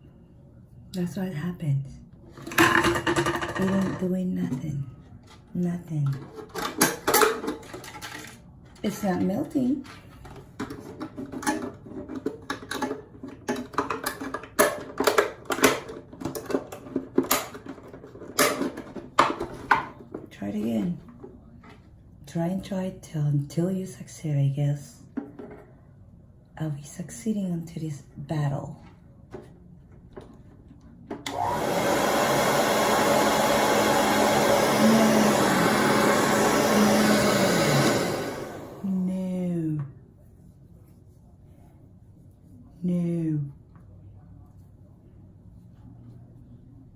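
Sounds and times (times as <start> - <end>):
hair dryer running: 31.3 - 39.0.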